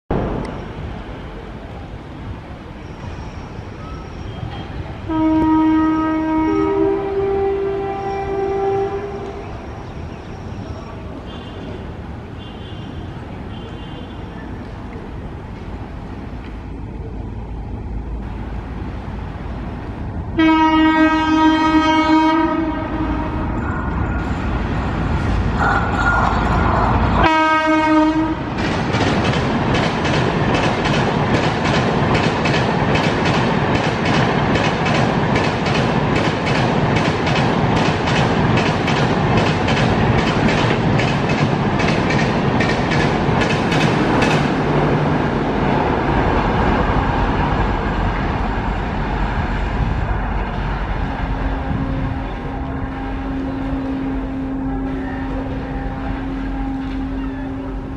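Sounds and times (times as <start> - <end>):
locomotive horn blasts: 5.1 - 9.6, 20.4 - 23.9, 27.1 - 28.5, 51.5 - 57.9
train wheels clickety-clack: 25.2 - 45.6.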